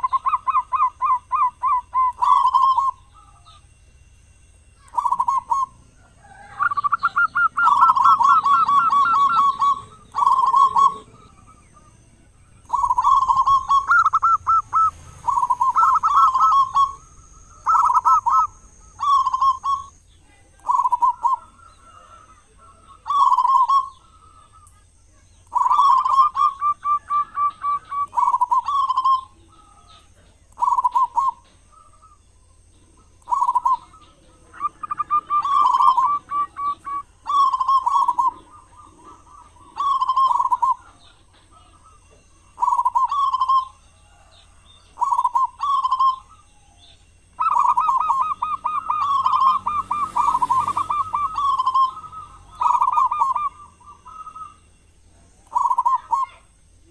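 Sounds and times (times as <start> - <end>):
dove cooing: 0.0 - 56.9.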